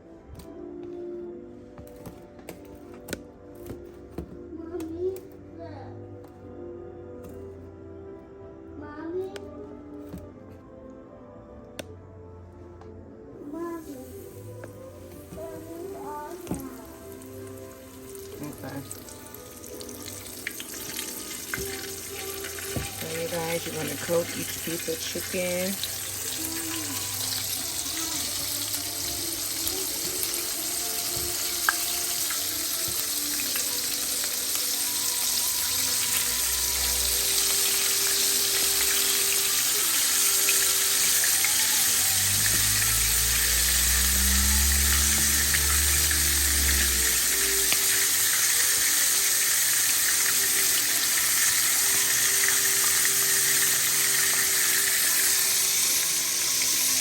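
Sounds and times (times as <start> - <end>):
chicken wings frying in oil: 13.8 - 57.0.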